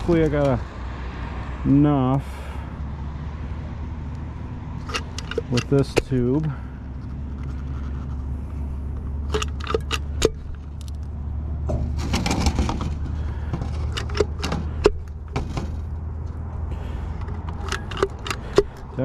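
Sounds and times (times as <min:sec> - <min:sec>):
metallic clicks and clinks: 0:04.8 - 0:11.1, 0:13.8 - 0:15.1, 0:17.2 - 0:19.0
scraping and rattling: 0:04.8 - 0:19.0.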